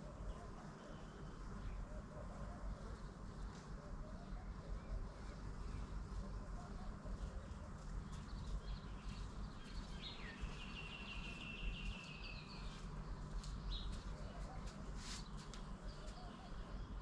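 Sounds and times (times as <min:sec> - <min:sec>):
low rumbling background noise: 0:00.0 - 0:17.0
bird chirps: 0:07.2 - 0:14.6.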